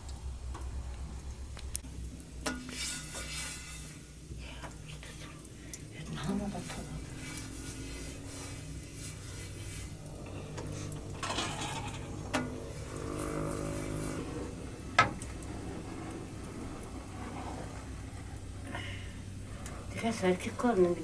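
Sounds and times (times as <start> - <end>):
pots and utensils clinking: 2.0 - 17.0.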